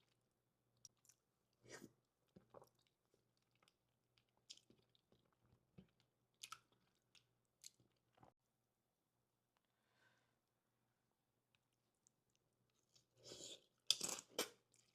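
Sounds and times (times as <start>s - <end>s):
person chewing: 0.8s - 8.4s.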